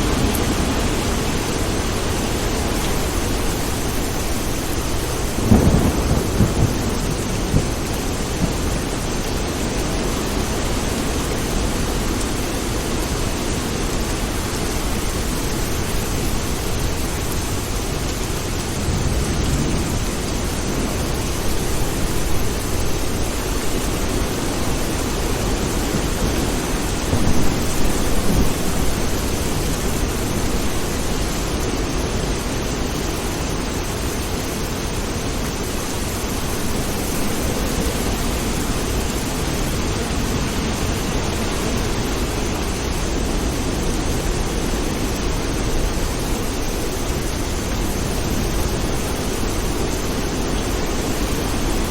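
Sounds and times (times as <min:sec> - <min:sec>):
heavy rain: 0:00.0 - 0:51.9
thunder rolling: 0:03.9 - 0:10.4, 0:18.8 - 0:31.4.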